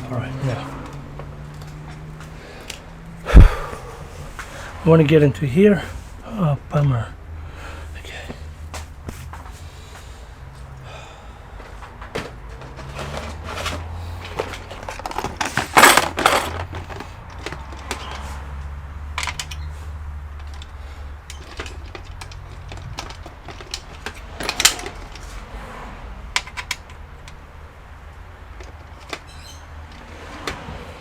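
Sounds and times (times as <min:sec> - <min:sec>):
loud clatter: 0:14.4 - 0:18.2
tools clicking on computer casing: 0:20.4 - 0:25.3.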